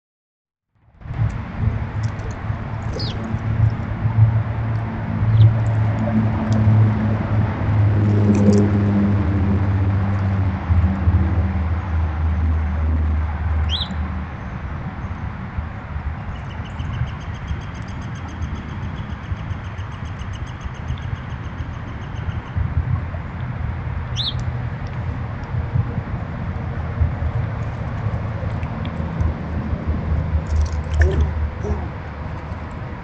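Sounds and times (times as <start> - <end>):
low motor hum: 0.8 - 33.0
bird chirping and trilling: 2.9 - 3.3, 13.6 - 14.0, 24.1 - 24.4.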